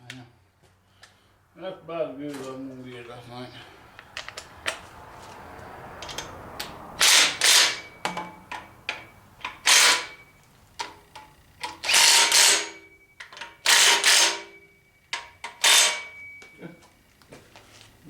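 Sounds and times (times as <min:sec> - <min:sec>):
wrench tightening bolts: 0:07.0 - 0:10.1, 0:10.8 - 0:14.4, 0:15.2 - 0:16.1
faint metal ringing: 0:12.4 - 0:16.9.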